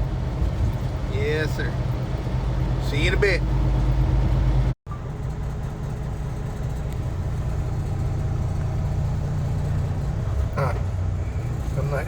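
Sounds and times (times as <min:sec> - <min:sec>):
diesel truck engine droning: 0:00.0 - 0:12.0.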